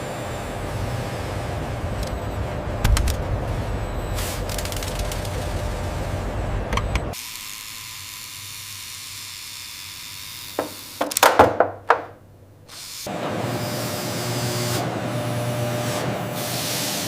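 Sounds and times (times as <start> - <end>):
factory machinery running: 0.0 - 7.3, 13.0 - 17.0
sharp clicks and knocks: 2.8 - 3.2, 10.6 - 12.2.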